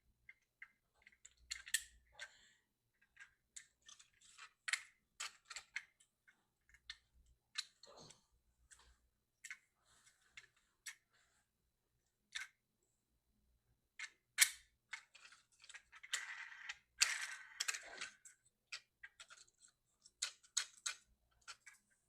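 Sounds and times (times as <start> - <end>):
clicks and taps of metal toy trucks: 0.2 - 7.9, 14.0 - 21.9.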